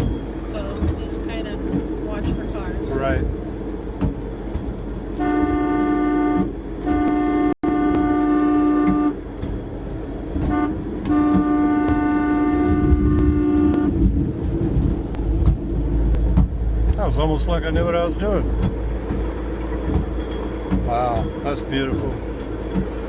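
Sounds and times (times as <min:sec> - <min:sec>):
vehicle engine running low: 0:00.0 - 0:23.0
car horn blasts: 0:05.2 - 0:09.2, 0:10.4 - 0:14.1.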